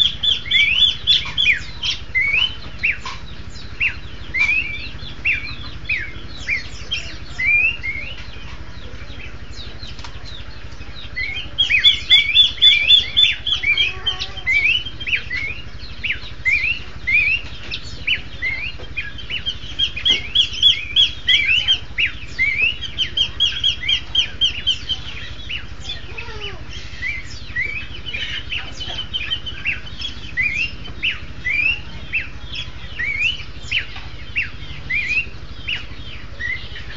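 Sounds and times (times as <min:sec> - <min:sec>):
birds singing in duet: 0:00.0 - 0:36.9.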